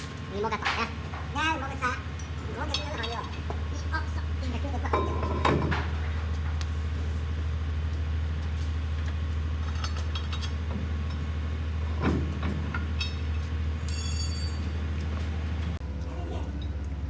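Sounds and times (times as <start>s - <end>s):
wheel loader engine droning: 0.0s - 17.0s
metal knocks or clanks: 4.8s - 6.9s, 9.6s - 14.9s.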